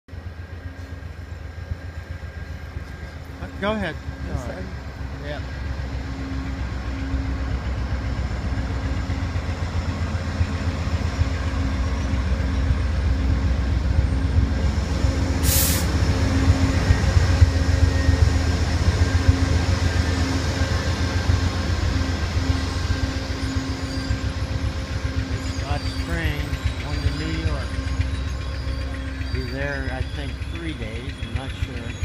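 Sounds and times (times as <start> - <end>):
diesel locomotive rumbling: 0.1 - 32.0
short loud hiss: 15.4 - 15.9.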